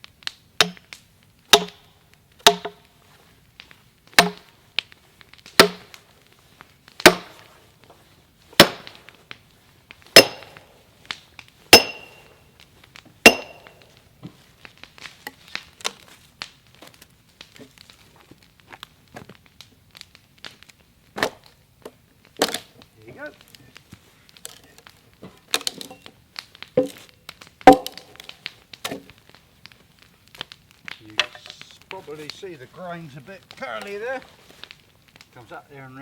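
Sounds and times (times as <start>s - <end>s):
wood cracking and ticking: 0.0s - 36.0s
sledgehammer striking steel wedge: 1.5s - 1.8s, 2.4s - 2.8s, 4.2s - 4.4s, 5.6s - 5.9s, 7.0s - 7.4s, 8.6s - 9.0s, 10.2s - 10.7s, 11.7s - 12.3s, 13.2s - 13.8s, 27.7s - 28.0s.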